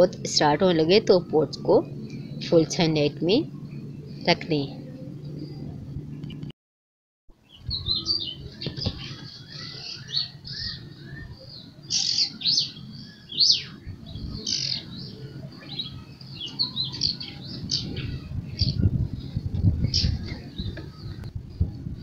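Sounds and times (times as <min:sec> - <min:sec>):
low background rumble: 0:00.0 - 0:06.5, 0:07.5 - 0:22.0
small birds chirping: 0:07.4 - 0:21.4.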